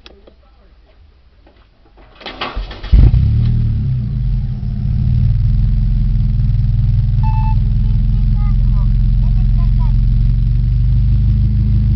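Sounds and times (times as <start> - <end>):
starter cranking engine: 2.2 - 3.6
car engine idling: 2.9 - 11.9.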